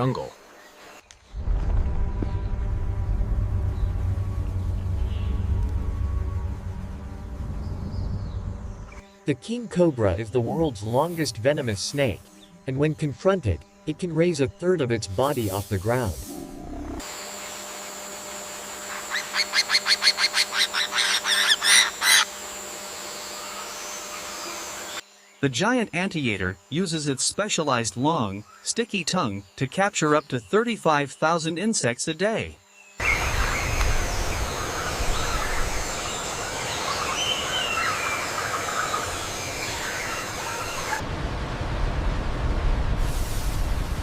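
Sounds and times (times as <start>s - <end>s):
bird calling harsh notes: 18.8s - 22.3s, 33.0s - 41.0s.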